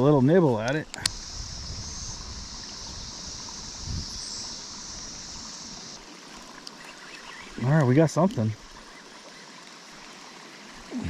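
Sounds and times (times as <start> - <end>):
creek water rushing: 0.0 - 11.0
wind rumbling on microphone: 1.0 - 5.6.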